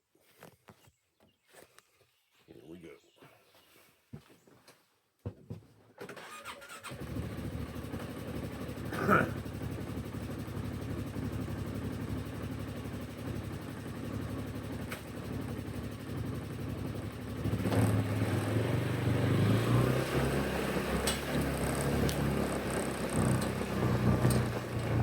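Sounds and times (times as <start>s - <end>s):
engine idling: 6.9s - 19.7s, 20.6s - 25.0s.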